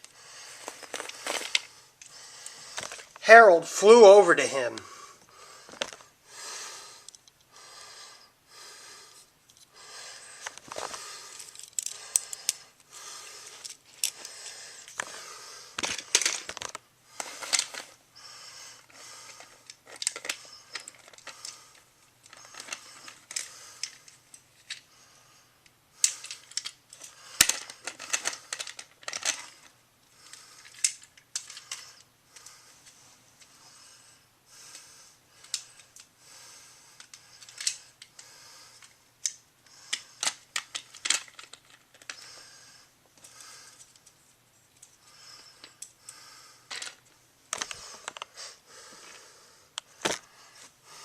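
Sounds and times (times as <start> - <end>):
faint hum: 0.0 - 51.0
plastic toys clicking and tapping: 15.8 - 17.8, 19.4 - 24.8, 26.0 - 32.5, 37.0 - 38.2, 38.8 - 42.3, 46.7 - 48.3.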